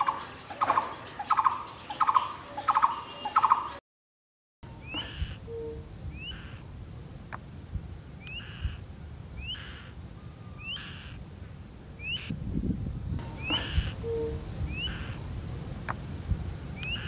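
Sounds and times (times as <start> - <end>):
bird rising whistle call: 9.4 - 11.2, 13.4 - 15.2.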